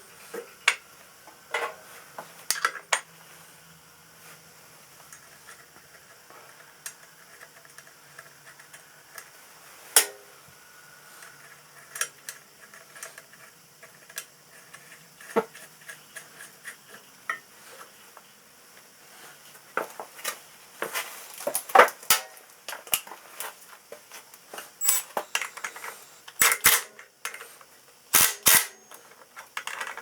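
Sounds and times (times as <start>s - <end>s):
metal tools clinking: 24.8s - 26.8s.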